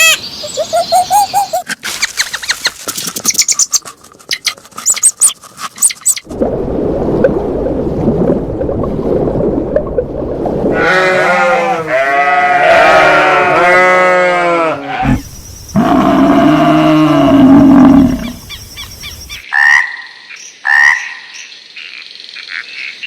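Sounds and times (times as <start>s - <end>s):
animal calling: 0.0s - 6.2s, 10.8s - 18.9s.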